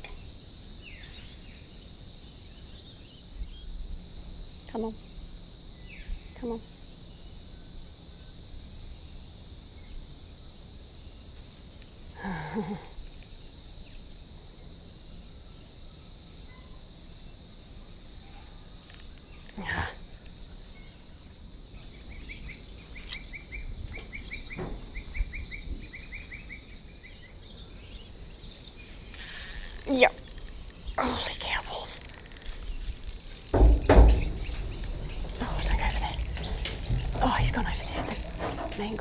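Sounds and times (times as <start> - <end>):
insects chirring: 0.0 - 39.0
birds chirping: 20.7 - 39.0
knocks on wooden footbridge: 33.5 - 39.0.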